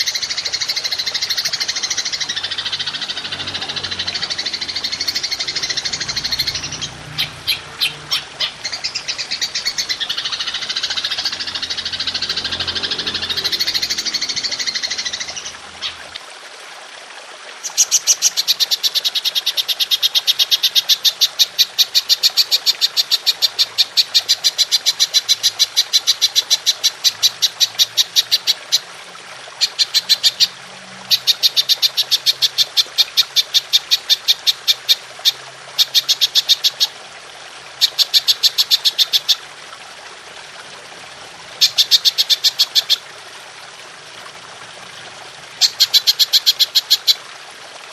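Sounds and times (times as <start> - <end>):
grasshopper chirping pulses: 0.0 - 16.0.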